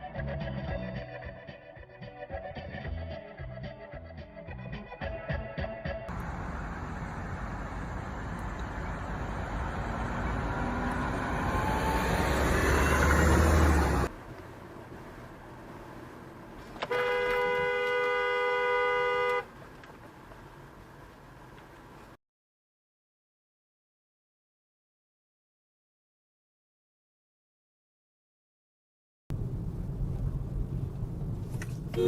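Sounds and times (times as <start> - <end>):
rushing vehicle and road noise: 6.1 - 22.2, 29.3 - 32.0
car horn blast: 16.8 - 19.5.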